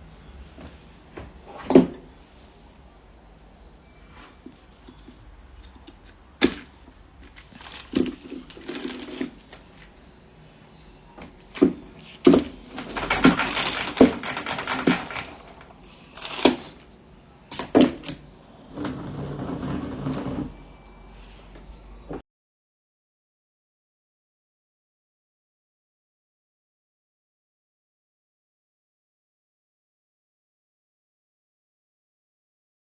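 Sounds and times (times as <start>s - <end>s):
hard objects knocking and rattling: 11.6s - 16.7s.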